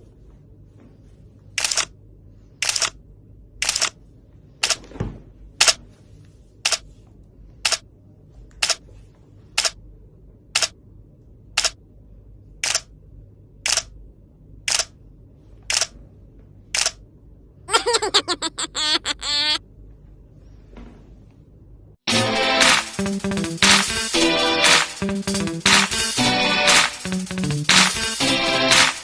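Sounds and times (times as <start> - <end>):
sharp clicks: 11.6 - 11.8, 14.7 - 14.9.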